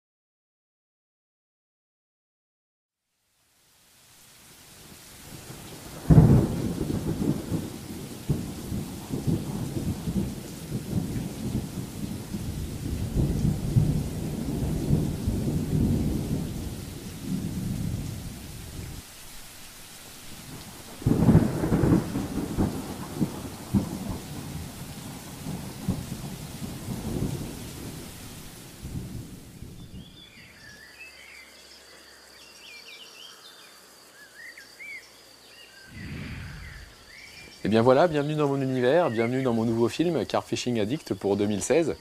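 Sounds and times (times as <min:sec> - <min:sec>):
faint rain hiss: 0:03.0 - 0:42.0
thunder clap and rumble: 0:05.8 - 0:19.0, 0:20.6 - 0:28.2, 0:35.9 - 0:38.1.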